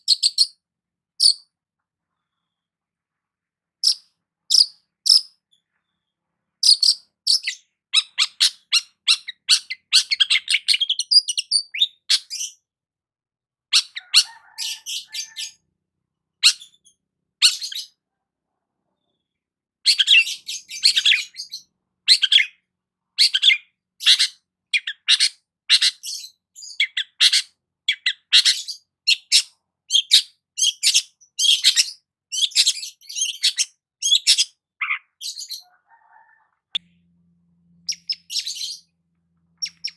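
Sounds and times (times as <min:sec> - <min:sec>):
bird singing scratchy chirps: 0:00.0 - 0:00.6, 0:03.8 - 0:05.8, 0:06.6 - 0:12.6, 0:19.9 - 0:22.6, 0:23.2 - 0:35.7, 0:37.8 - 0:38.9, 0:39.5 - 0:39.9.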